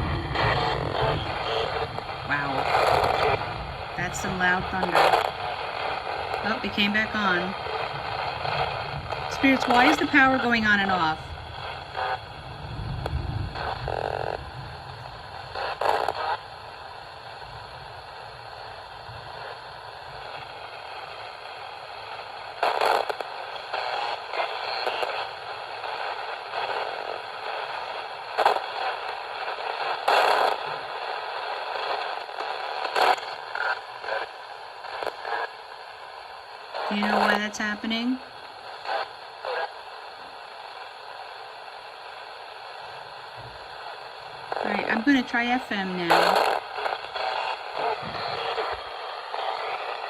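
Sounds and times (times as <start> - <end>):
low rumble: 0.0 - 4.8, 11.2 - 15.6
chopped radio station audio: 0.0 - 17.4, 22.6 - 50.0
radio static: 0.0 - 50.0.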